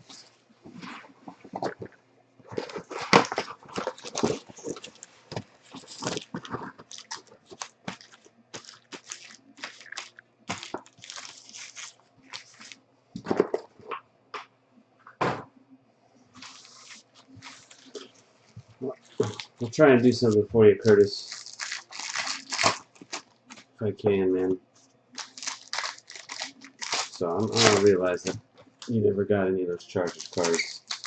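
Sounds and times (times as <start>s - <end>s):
foil wrappers crinkling and tearing: 2.5s - 12.8s, 16.4s - 18.2s, 19.0s - 23.7s, 25.1s - 28.4s, 30.0s - 31.0s
cards being handled: 2.5s - 14.0s, 16.4s - 18.2s, 25.2s - 28.4s, 30.0s - 31.0s.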